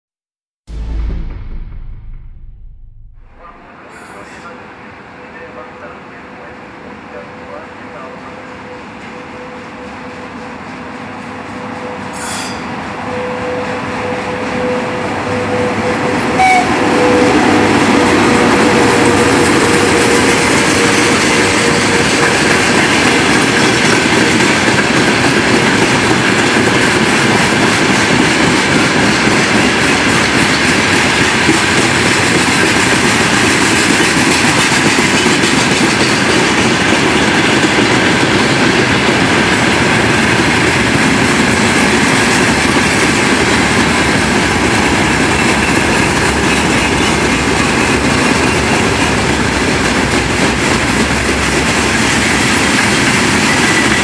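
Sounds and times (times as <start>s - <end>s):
freight train wheels clattering: 17.5s - 54.0s.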